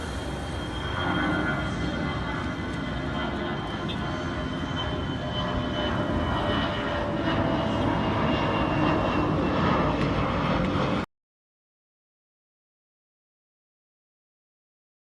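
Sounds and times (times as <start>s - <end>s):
jet engines rumbling and whining: 0.0s - 11.1s.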